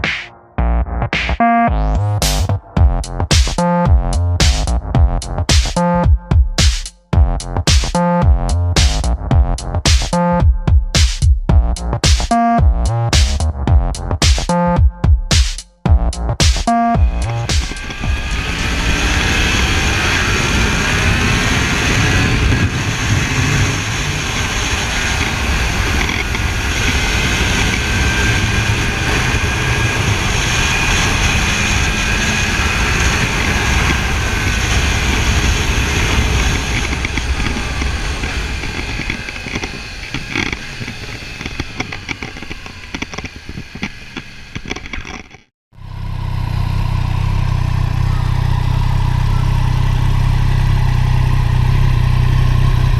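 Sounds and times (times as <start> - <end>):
motorcycle engine running: 15.9 - 52.9
low engine idling: 17.0 - 20.5, 45.8 - 52.9.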